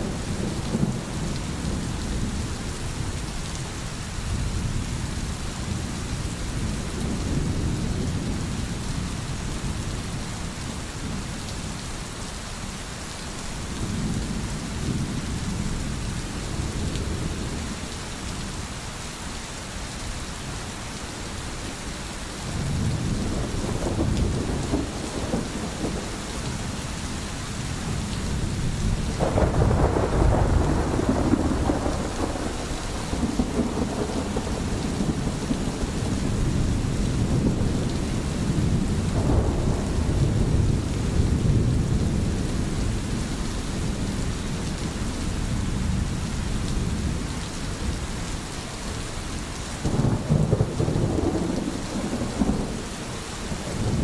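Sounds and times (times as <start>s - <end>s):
heavy rain: 0.0s - 54.0s
rolling thunder: 22.5s - 26.8s, 27.7s - 43.2s, 49.8s - 54.0s.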